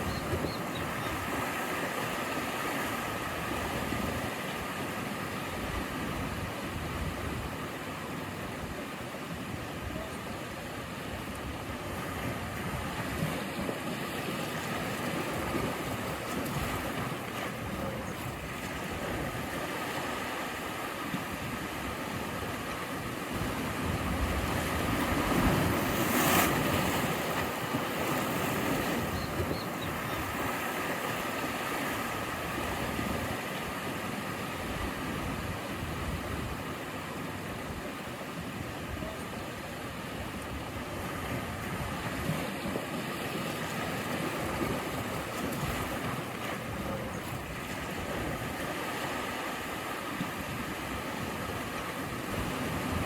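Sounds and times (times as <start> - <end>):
waves breaking on shore: 0.0 - 53.0.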